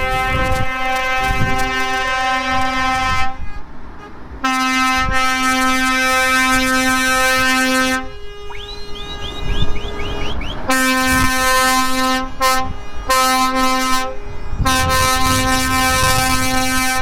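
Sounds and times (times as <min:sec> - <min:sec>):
truck air horn blasts: 0:00.0 - 0:17.0
high rising chirps: 0:08.5 - 0:10.7.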